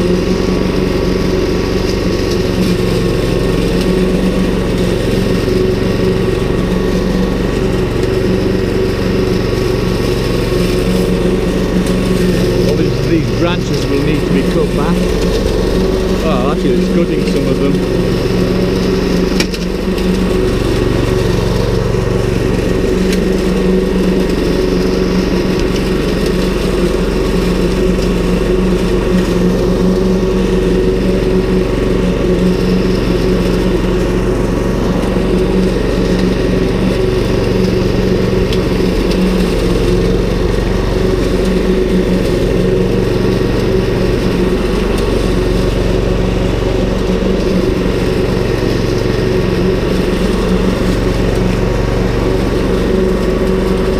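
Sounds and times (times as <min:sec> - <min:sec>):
lawn mower mowing grass: 0:00.0 - 0:53.9.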